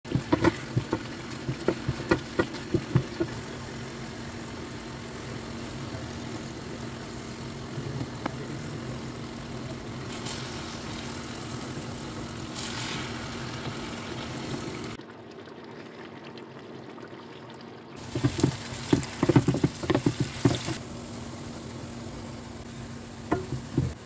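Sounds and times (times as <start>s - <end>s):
steady low hum: 0.0s - 15.0s, 18.0s - 24.0s
meat hissing in hot pan: 10.0s - 15.0s.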